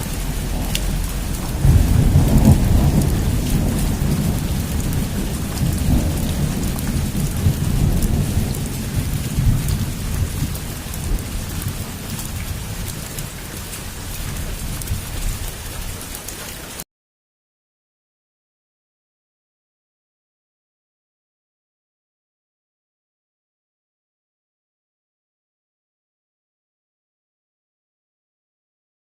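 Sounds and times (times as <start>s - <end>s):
thunder rolling: 0.0s - 15.8s
heavy rain pattering: 0.0s - 16.8s.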